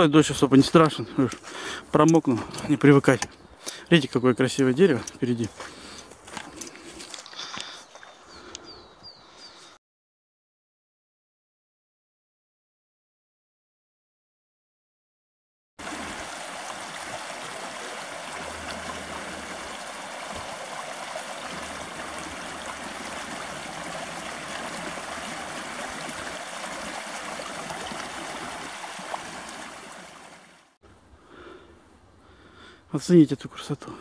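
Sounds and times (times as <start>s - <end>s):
stream running over stones: 4.5s - 8.4s, 15.8s - 30.8s.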